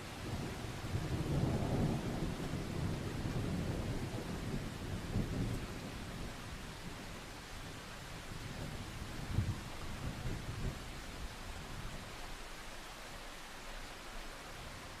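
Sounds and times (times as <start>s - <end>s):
steady rain hiss: 0.0s - 15.0s
distant thunder rolling: 0.2s - 7.8s.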